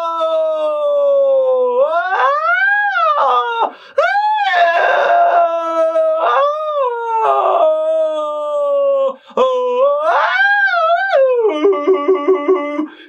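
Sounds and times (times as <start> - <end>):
person singing vocal exercise: 3.0 - 13.0.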